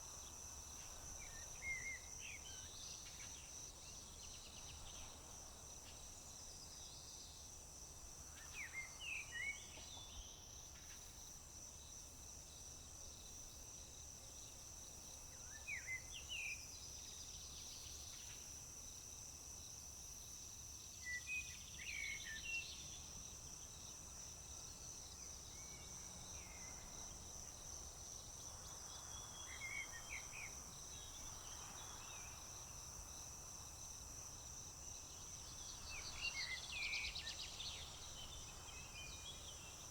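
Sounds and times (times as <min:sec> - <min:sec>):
crickets chirping: 0:00.0 - 0:39.9
low background hiss: 0:00.0 - 0:39.9
songbird singing: 0:28.6 - 0:32.5, 0:35.1 - 0:39.9.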